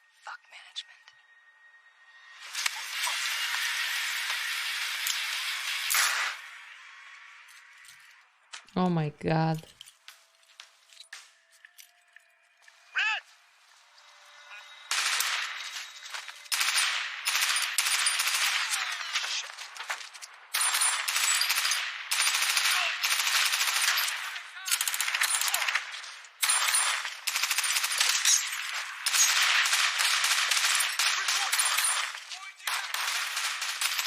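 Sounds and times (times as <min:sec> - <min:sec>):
rapid automatic gunfire: 0:14.9 - 0:19.8, 0:20.5 - 0:34.0.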